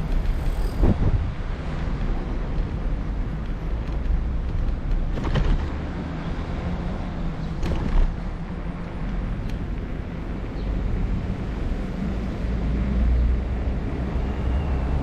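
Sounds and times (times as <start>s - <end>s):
wind buffeting microphone: 0.0s - 5.7s
short knocks and rattles: 5.1s - 5.8s.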